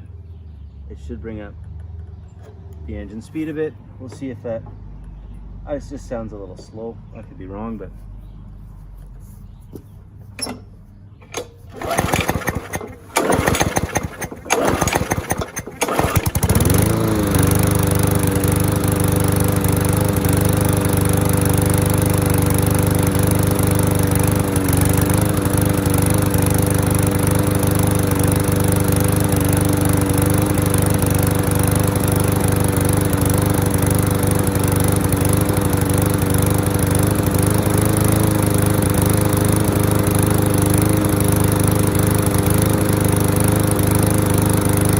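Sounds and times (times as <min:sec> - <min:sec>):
lawn mower engine running: 0:10.2 - 0:44.9
lawn mower engine cranking: 0:10.3 - 0:44.9.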